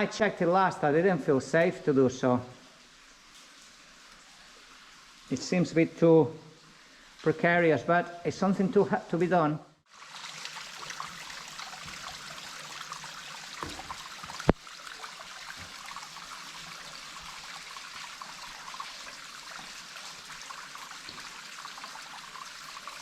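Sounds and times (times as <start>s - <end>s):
water trickling and dripping: 0.0s - 23.0s.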